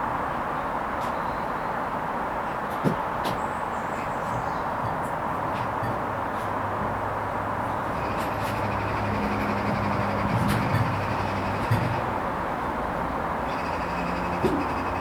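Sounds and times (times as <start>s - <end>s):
washing machine drum motor humming: 4.4s - 12.4s.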